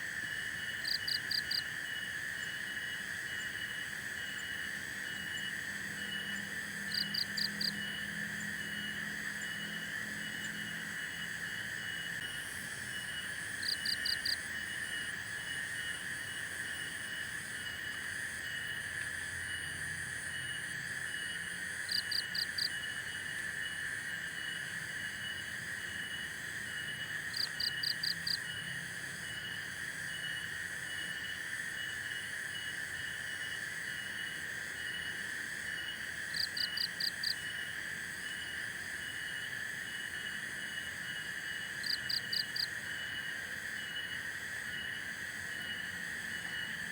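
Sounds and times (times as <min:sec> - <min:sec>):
insect drone: 0:00.0 - 0:46.9
pulsing insect trill: 0:20.3 - 0:46.9.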